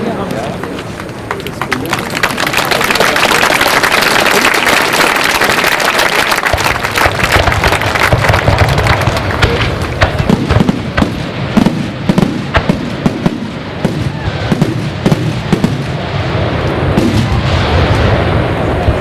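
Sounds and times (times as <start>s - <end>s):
fireworks bangs and crackles: 0.0s - 19.0s
low rumble: 6.6s - 19.0s.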